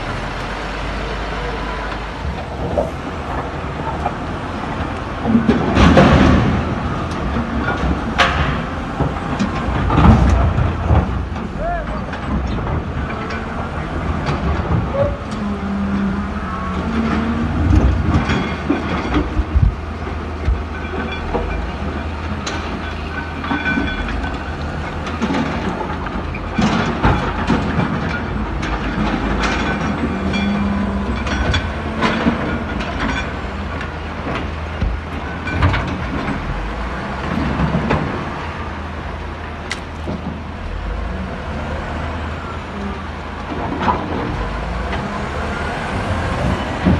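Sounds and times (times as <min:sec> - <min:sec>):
heavy diesel machinery running: 0:00.0 - 0:46.9
metallic clanks and knocks: 0:02.2 - 0:38.9.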